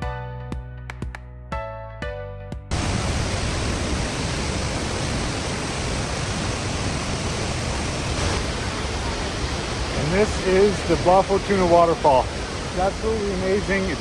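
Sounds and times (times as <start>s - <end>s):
background music: 0.0s - 2.7s
waterfall rushing: 2.7s - 14.0s.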